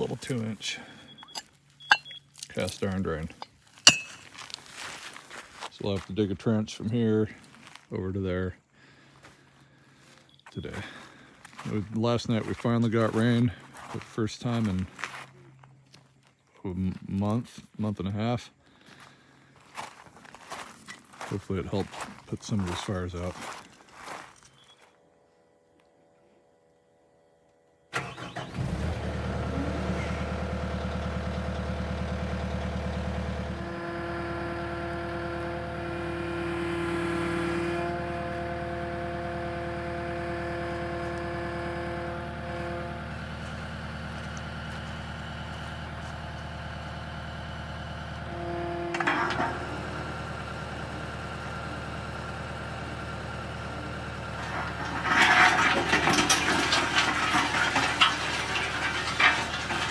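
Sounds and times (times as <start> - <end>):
digging machine engine running: 0.0 - 5.0, 28.0 - 59.9
rough scraping and clattering: 0.0 - 5.7, 28.6 - 46.8, 47.9 - 59.9
whining hydraulic tones: 32.9 - 43.8, 48.0 - 59.9.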